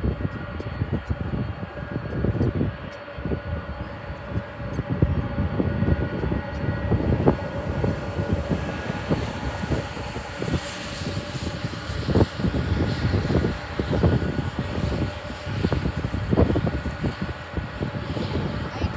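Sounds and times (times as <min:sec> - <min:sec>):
jet engines whining: 0:00.0 - 0:18.9
wind buffeting microphone: 0:00.0 - 0:18.9.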